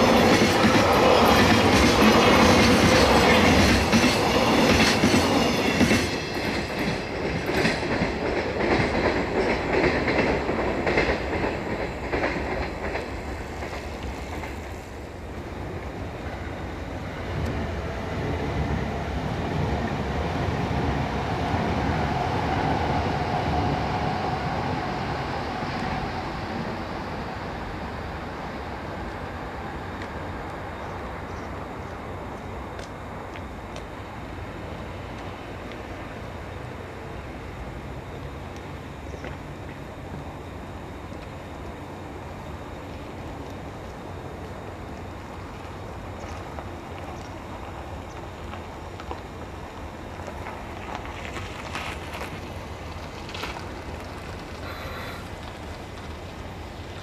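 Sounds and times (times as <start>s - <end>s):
wheels clacking over rail joints: 0.0s - 15.2s, 42.9s - 57.0s
low train rumble: 0.0s - 57.0s.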